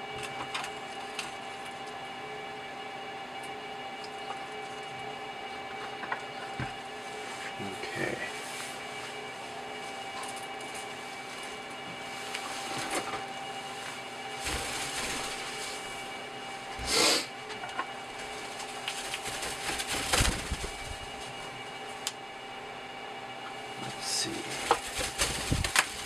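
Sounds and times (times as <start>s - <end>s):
plastic scraping and rubbing: 24.5s - 26.0s.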